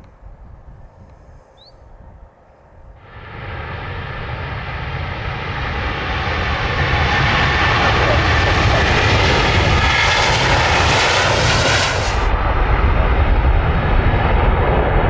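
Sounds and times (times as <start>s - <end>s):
jet engines running: 3.0s - 15.0s.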